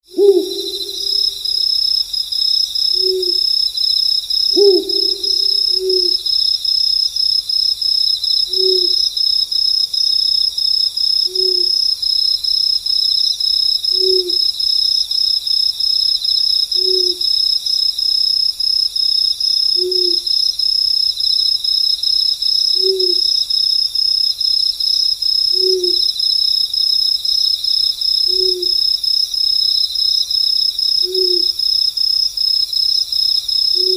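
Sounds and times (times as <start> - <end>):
crickets chirping: 0.0 - 33.9
owl hooting: 0.1 - 1.6, 2.9 - 3.5, 4.5 - 6.3, 8.5 - 9.0, 11.3 - 11.8, 13.9 - 14.5, 16.8 - 17.2, 19.7 - 20.3, 22.8 - 23.2, 25.5 - 26.0, 28.3 - 28.8, 31.0 - 31.6.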